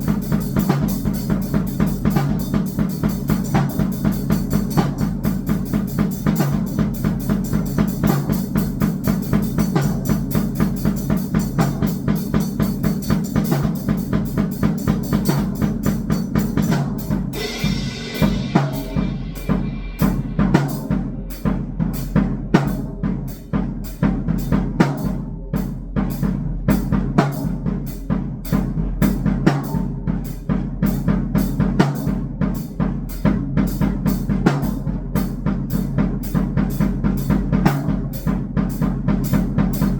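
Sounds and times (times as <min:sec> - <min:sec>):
drum kit playing fast rhythm: 0:00.0 - 0:39.9
cymbal crash: 0:17.1 - 0:22.2.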